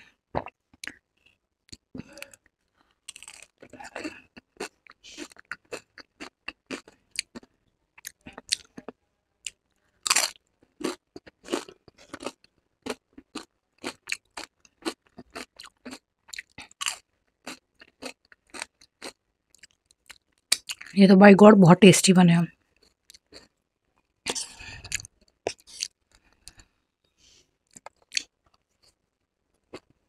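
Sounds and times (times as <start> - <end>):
crunching tortilla chips: 2.8 - 8.9, 9.5 - 20.9.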